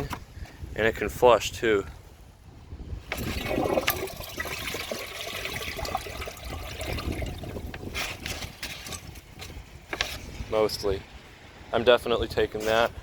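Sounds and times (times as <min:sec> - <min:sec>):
toilet water rushing: 0:03.1 - 0:07.8.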